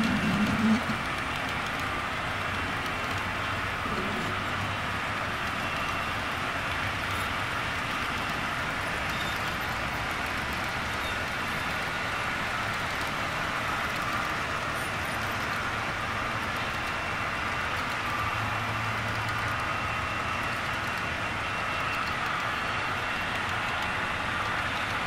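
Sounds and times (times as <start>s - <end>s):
model train motor whirring: 0.0s - 25.0s
wheels rolling on track: 0.0s - 25.0s.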